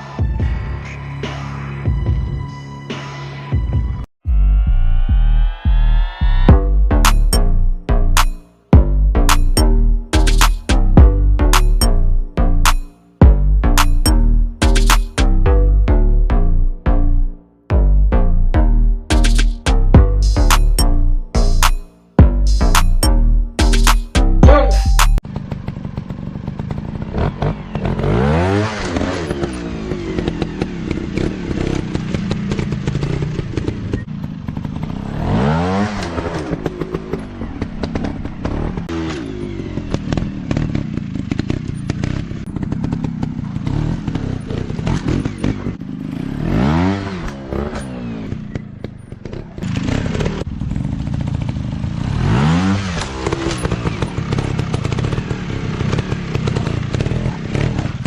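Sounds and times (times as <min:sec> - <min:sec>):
dirt bike engines revving: 0:24.2 - 0:58.0.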